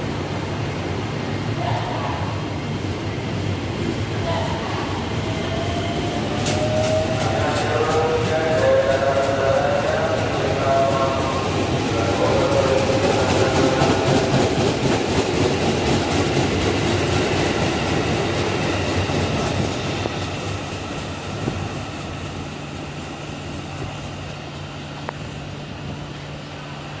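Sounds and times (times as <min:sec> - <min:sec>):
electric train pulling out: 0:00.0 - 0:27.0
train wheels clacking: 0:05.4 - 0:22.7.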